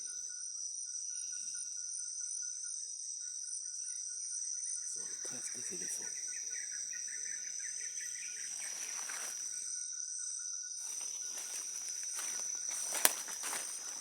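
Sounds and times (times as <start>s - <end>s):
high-pitched insect drone: 0.0s - 14.0s
insects chirping: 0.0s - 14.0s
footsteps in leaf litter: 8.6s - 9.6s, 10.8s - 14.0s.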